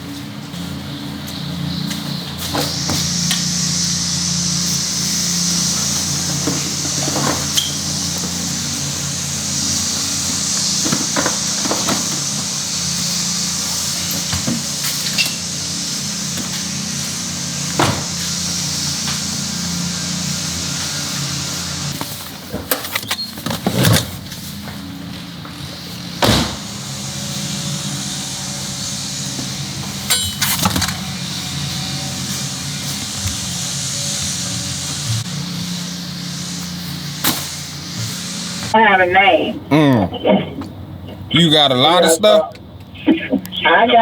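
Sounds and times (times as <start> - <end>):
steady machine hum: 0.0 - 44.0
hiss of moving air: 2.4 - 22.3, 25.0 - 38.8.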